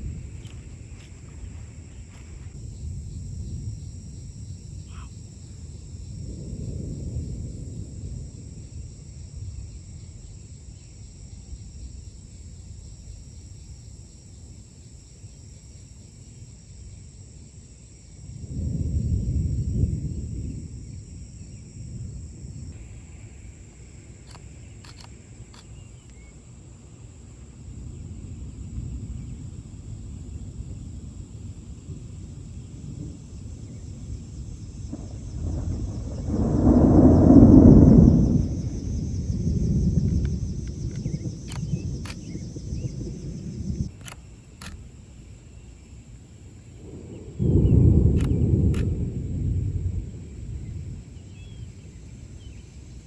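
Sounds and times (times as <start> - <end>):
strong wind gusting on microphone: 0.0 - 14.0, 18.2 - 23.1, 27.6 - 45.0, 46.6 - 53.0
sharp clicks: 24.2 - 26.2, 40.1 - 42.3, 43.9 - 44.8, 48.2 - 48.9.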